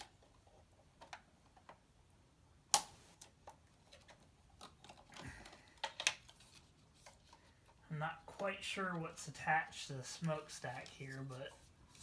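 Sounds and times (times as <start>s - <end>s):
plastic toy clicks and taps: 4.6s - 6.3s.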